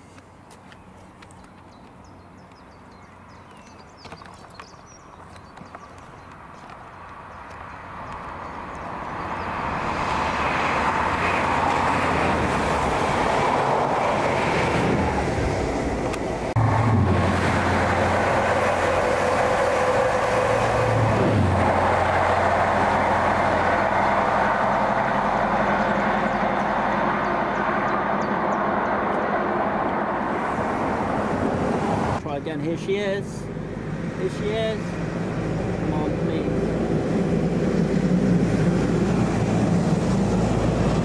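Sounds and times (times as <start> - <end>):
low engine drone: 8.3 - 32.2, 33.3 - 41.0.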